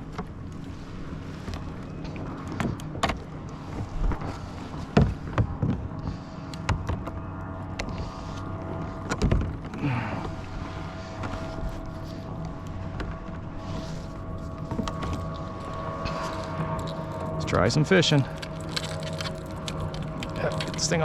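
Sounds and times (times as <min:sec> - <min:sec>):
steady low hum: 0:00.0 - 0:21.0
knocks and clunks from a kayak: 0:01.4 - 0:05.9, 0:08.8 - 0:10.4.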